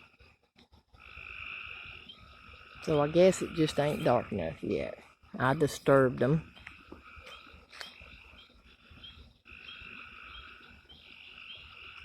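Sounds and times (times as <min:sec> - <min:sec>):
frogs trilling and chirping: 0:00.0 - 0:12.0.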